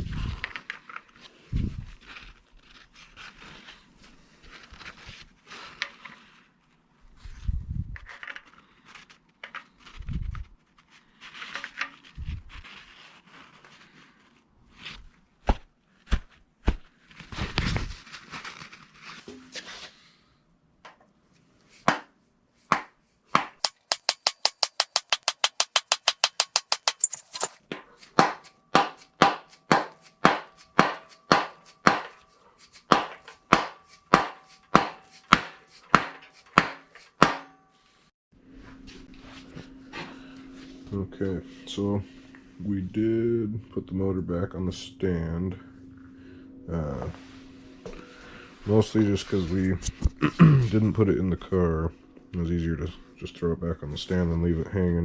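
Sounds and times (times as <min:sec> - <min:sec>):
hammer striking metal: 0:23.6 - 0:27.6
rapid even clicking: 0:23.6 - 0:27.6.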